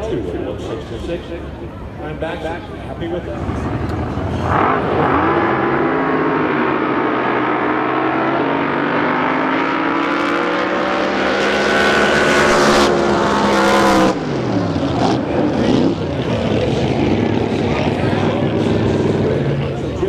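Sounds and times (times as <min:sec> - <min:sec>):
racing boat engine at full throttle: 0:02.8 - 0:20.0.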